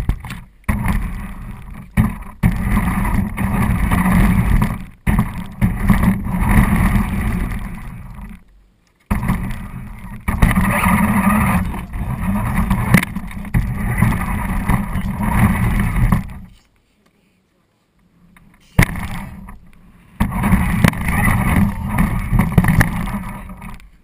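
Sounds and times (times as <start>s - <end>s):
rc car motor and wheels: 9.4s - 16.6s, 20.4s - 23.9s.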